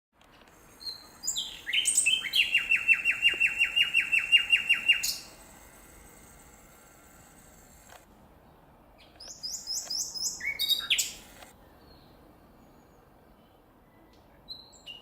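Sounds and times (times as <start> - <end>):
nightingale singing: 0.8 - 5.4, 9.0 - 15.0.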